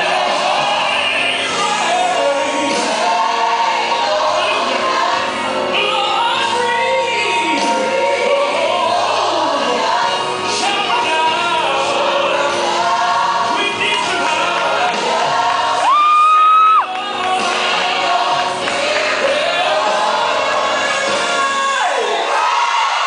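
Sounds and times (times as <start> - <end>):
gospel choir singing: 0.0 - 23.0.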